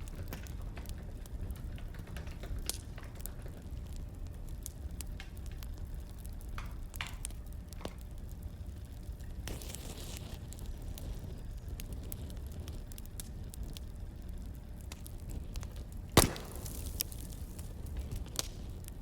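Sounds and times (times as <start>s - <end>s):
fire snapping and popping: 0.0s - 19.0s
wood fire crackling: 0.0s - 19.0s.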